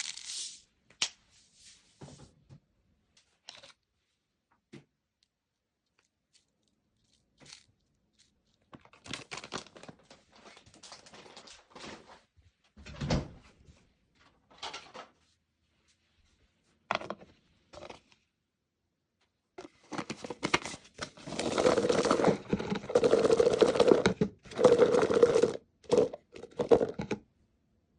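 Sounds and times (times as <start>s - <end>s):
crinkly rustling: 5.9s - 12.3s, 19.6s - 27.1s.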